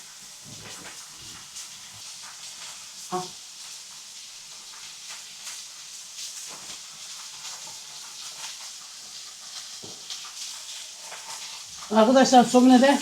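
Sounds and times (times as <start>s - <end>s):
meat and onions sizzling: 0.0s - 13.0s
small crackles: 0.0s - 13.0s.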